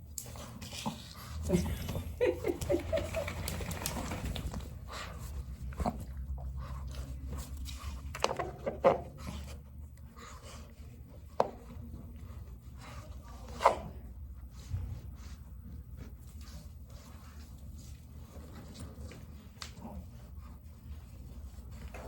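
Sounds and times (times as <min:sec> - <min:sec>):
dogs panting: 0:00.2 - 0:13.3.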